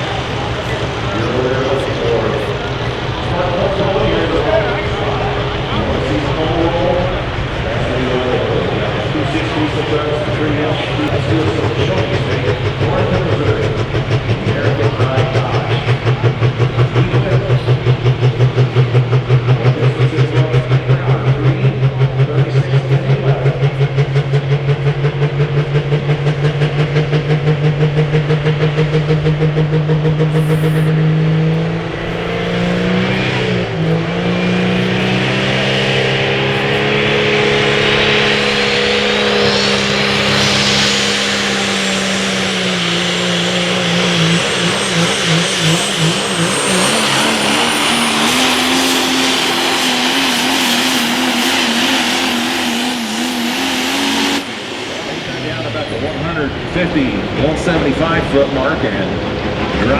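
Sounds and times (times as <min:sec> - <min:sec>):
diesel truck engine revving: 0:00.0 - 0:59.9
turbo whistle: 0:30.1 - 0:30.9.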